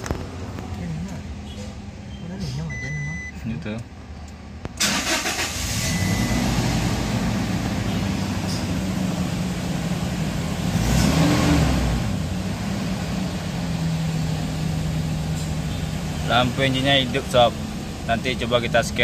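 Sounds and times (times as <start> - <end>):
engine cranking and starting: 4.8 - 6.3
engine revving: 4.8 - 15.2.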